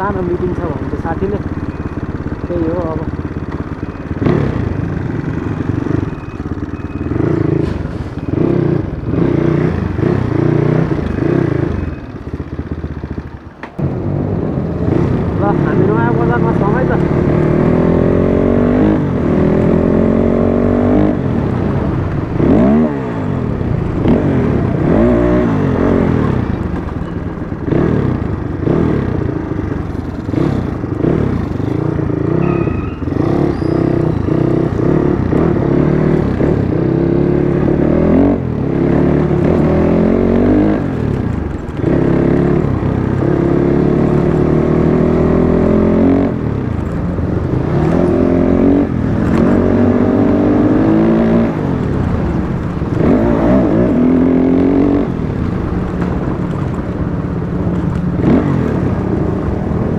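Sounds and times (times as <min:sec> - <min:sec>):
dirt bike engine accelerating: 0:00.0 - 0:59.9
road and wind noise: 0:00.0 - 0:59.9.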